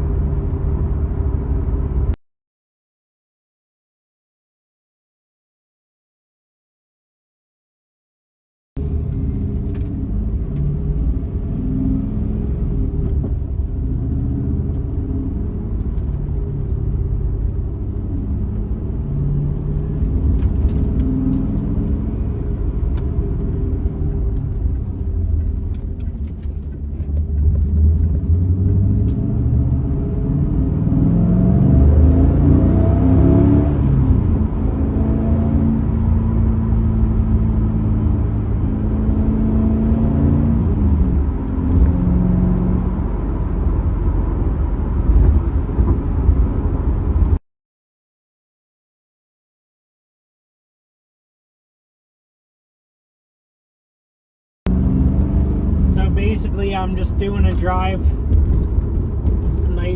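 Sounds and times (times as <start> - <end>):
car engine rumbling: 0.0 - 2.2, 8.8 - 47.4, 54.7 - 59.9
road noise: 0.0 - 2.2, 8.8 - 47.4, 54.7 - 59.9.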